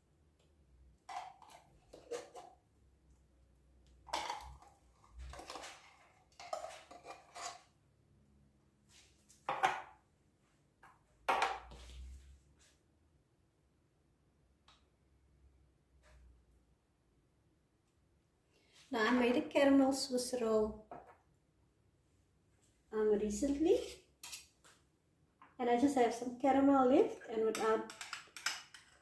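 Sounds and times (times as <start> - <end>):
metal spoon scraping a tin: 1.4 - 2.5, 5.3 - 7.7, 23.8 - 24.5.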